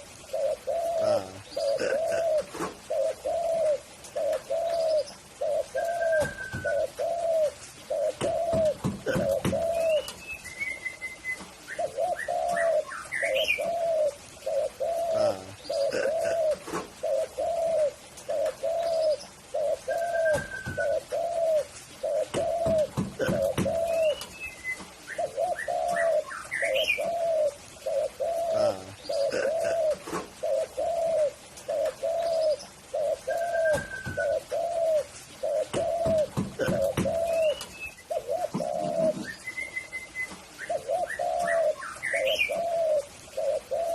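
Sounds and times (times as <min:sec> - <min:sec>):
dove cooing: 0:00.0 - 0:43.9
small bird chirping: 0:22.2 - 0:27.2.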